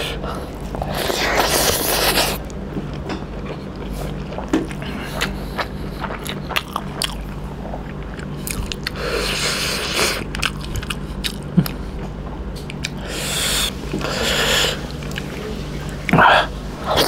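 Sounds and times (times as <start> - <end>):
chewing and biting: 0.4 - 13.4
wet mouth clicks: 12.6 - 13.0.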